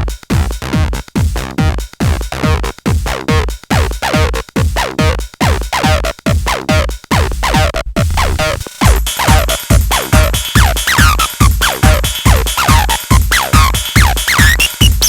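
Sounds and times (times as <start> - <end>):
kick drum beat: 0.0 - 15.0
low bass note: 7.8 - 8.7.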